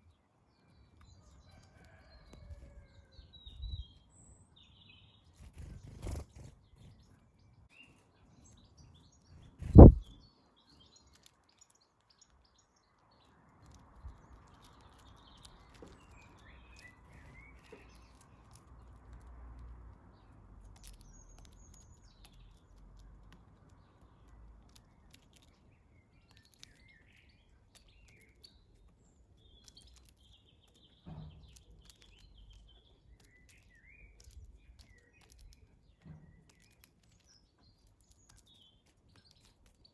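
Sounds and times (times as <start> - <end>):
birds chirping: 0.0 - 12.7
faint low rumble: 9.4 - 10.1.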